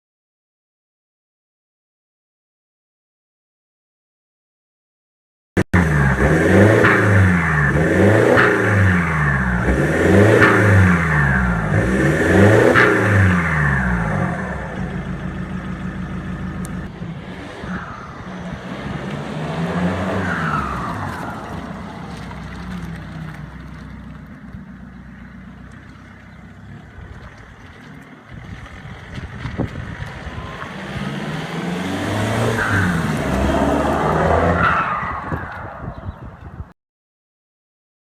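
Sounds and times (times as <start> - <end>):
diesel engine revving: 5.7 - 36.1
exhaust crack: 5.7 - 36.6.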